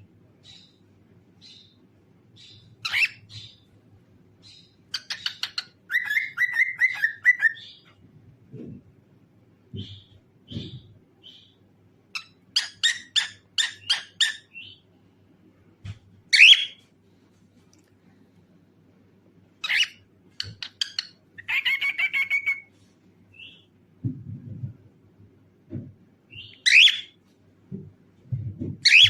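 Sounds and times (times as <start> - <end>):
cockatiel chirping: 2.4 - 3.6, 4.4 - 7.9, 12.2 - 14.8, 16.3 - 16.8, 19.6 - 22.7, 26.3 - 27.1
cockatiel chattering trill: 19.6 - 22.7.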